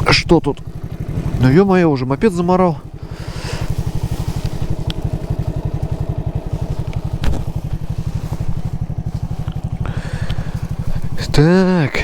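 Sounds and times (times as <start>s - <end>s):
moped engine idling: 0.0s - 12.0s.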